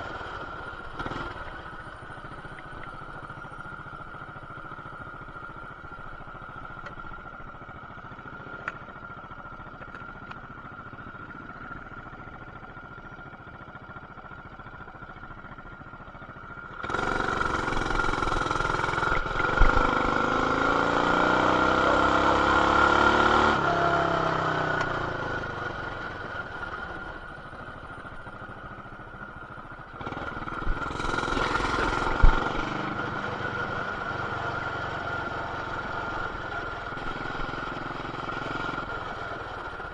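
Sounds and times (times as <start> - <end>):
mini bike engine revving: 1.0 - 1.6, 16.8 - 27.2, 29.9 - 39.9.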